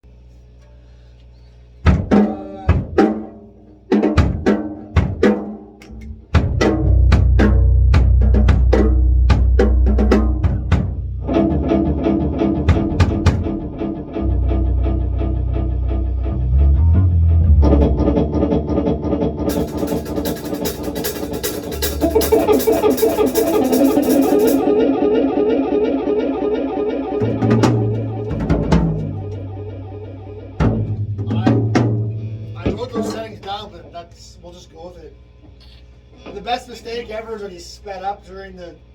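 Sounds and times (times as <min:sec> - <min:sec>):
rock guitar and drums: 0:01.8 - 0:16.8, 0:17.6 - 0:33.6
heavy low bass: 0:05.9 - 0:35.4
drums with fast cymbal strokes: 0:06.4 - 0:11.0, 0:19.5 - 0:24.8.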